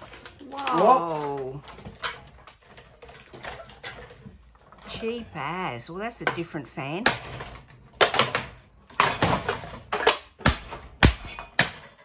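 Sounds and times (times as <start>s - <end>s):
plastic fan being smashed: 0.0s - 4.3s, 7.0s - 12.0s.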